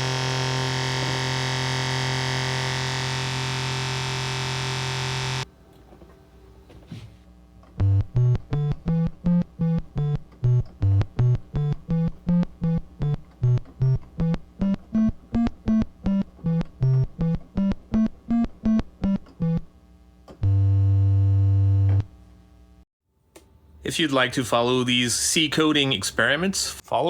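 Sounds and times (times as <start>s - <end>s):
synthesizer melody of short notes: 7.8s - 19.7s.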